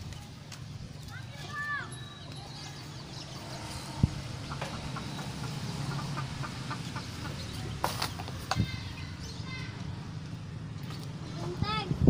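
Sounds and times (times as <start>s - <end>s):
chickens clucking: 3.4s - 8.6s.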